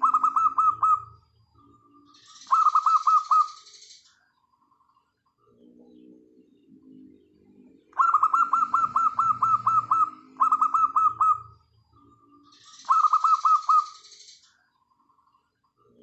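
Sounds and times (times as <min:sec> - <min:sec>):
dove staccato calls: 0:00.0 - 0:04.0, 0:07.9 - 0:11.7, 0:12.5 - 0:14.4.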